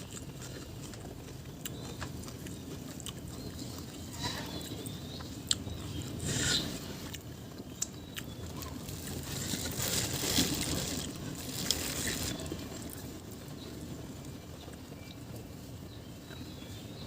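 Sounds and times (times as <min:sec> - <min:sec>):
person chewing and crunching food: 0:00.0 - 0:13.1.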